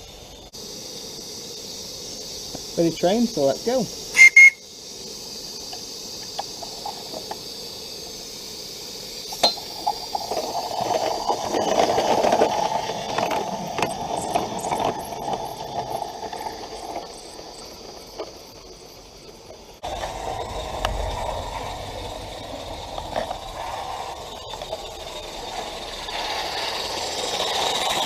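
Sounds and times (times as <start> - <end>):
steam exhaust rushing: 0.0 - 28.0
steam hissing: 0.0 - 28.0
locomotive clicks: 9.3 - 28.0.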